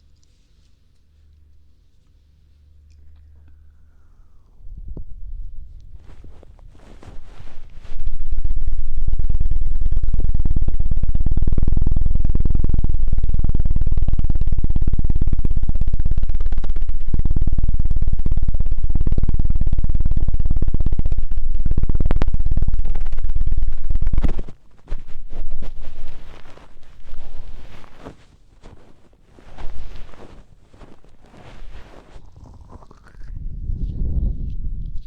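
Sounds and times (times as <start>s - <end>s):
fast thudding strokes on microphone: 4.7s - 8.1s, 24.2s - 32.9s.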